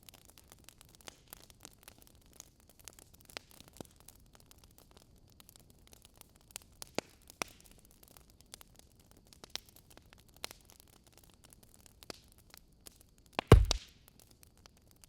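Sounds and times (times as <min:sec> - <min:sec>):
wood fire crackling: 0:04.6 - 0:14.4.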